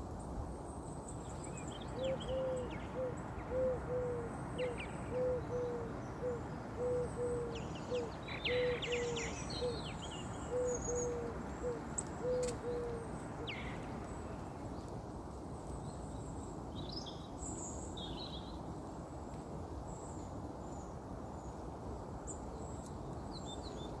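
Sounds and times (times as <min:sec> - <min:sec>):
bird hooting low notes: 0:02.0 - 0:09.8
small birds chirping: 0:11.9 - 0:14.9.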